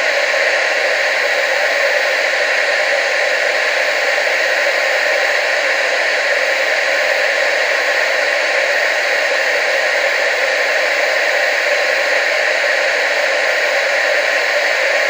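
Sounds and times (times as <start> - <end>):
tv static hiss: 0.0 - 15.0.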